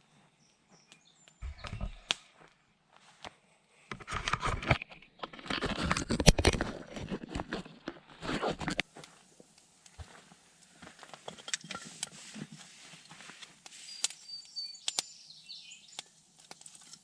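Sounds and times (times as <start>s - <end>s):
crunching and scraping handling noise: 3.9s - 15.1s, 15.9s - 17.0s.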